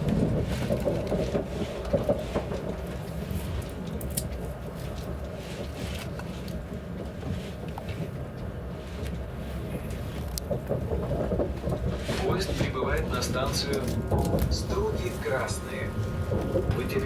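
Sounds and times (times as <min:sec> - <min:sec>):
train carriage rumbling on rails: 0:00.0 - 0:17.0
faint clicks and rattles: 0:07.7 - 0:17.0.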